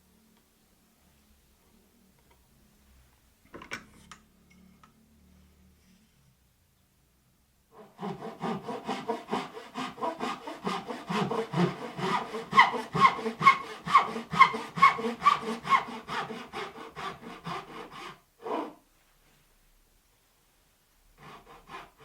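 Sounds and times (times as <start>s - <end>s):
hand saw cutting wood: 7.8s - 18.8s, 21.2s - 22.0s.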